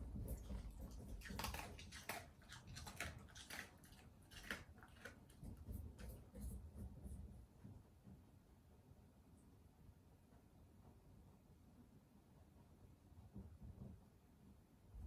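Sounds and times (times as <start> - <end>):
dog chewing food: 0.0 - 7.2.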